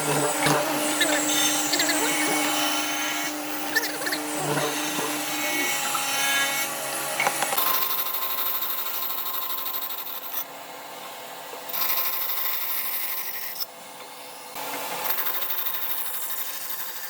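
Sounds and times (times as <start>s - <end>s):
power tool running on wood: 0.0s - 10.5s.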